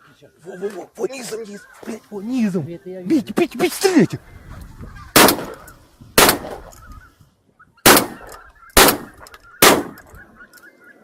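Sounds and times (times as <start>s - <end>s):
shotgun shots: 5.2s - 5.6s, 6.2s - 6.7s, 7.8s - 10.1s.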